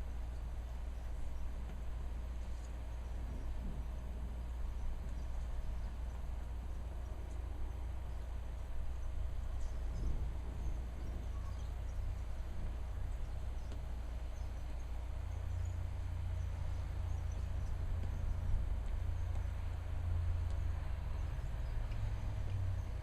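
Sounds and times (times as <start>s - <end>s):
storm low rumble: 0.0s - 23.0s
faint high chirps: 9.6s - 12.2s.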